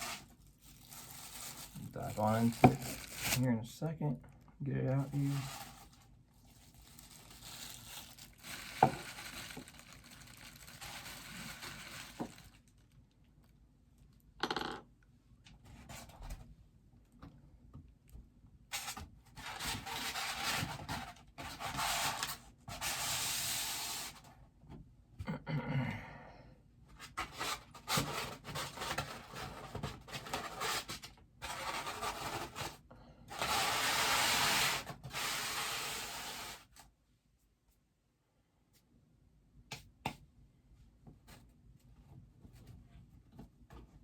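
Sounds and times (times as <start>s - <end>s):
packaging scraping and rubbing: 0.0s - 3.5s, 5.0s - 12.7s, 18.7s - 24.2s, 27.1s - 36.8s.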